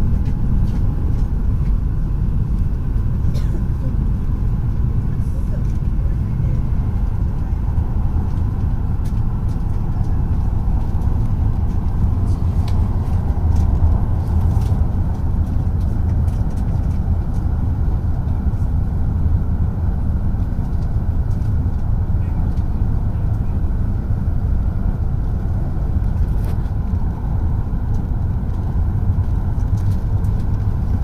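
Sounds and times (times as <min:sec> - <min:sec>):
train running noise inside cabin: 0:00.0 - 0:31.0.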